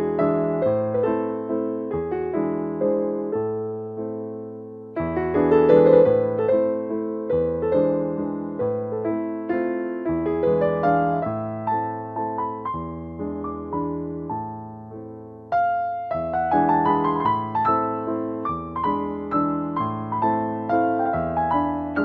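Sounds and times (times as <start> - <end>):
piano tune with bass line: 0.0 - 22.0.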